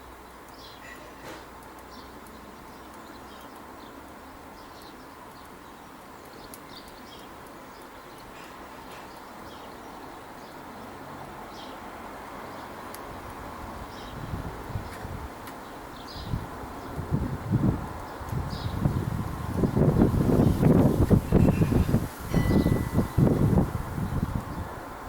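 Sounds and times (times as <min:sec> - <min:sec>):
outdoor background hiss: 0:00.0 - 0:25.0
faint bird chirps: 0:00.6 - 0:01.4, 0:21.2 - 0:23.2
sharp clicks: 0:06.2 - 0:08.3.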